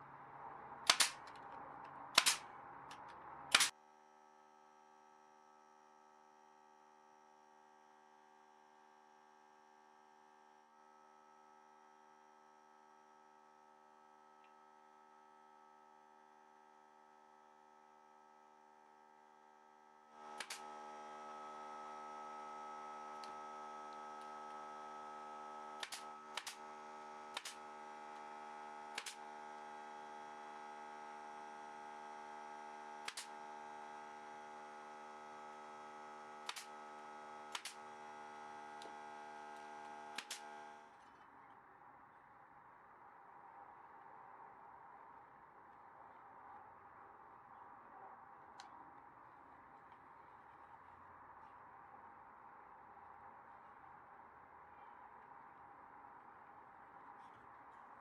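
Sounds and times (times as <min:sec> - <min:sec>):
sharp clicks: 0:00.9 - 0:01.6, 0:02.2 - 0:03.7, 0:20.2 - 0:20.8, 0:25.6 - 0:27.7, 0:28.9 - 0:29.3, 0:33.0 - 0:33.4, 0:36.4 - 0:36.9, 0:37.5 - 0:37.9, 0:38.8 - 0:40.9
electrical hum: 0:16.8 - 0:41.0.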